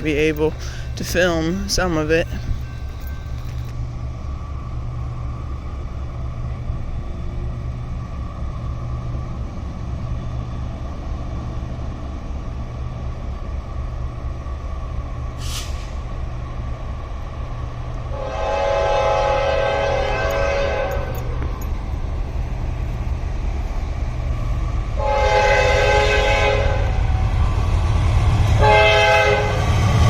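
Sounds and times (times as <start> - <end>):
brief hiss: 15.4 - 16.0
locomotive air horn chord: 18.1 - 21.4, 25.0 - 27.3, 28.6 - 29.6
steady low rumble: 19.6 - 28.6.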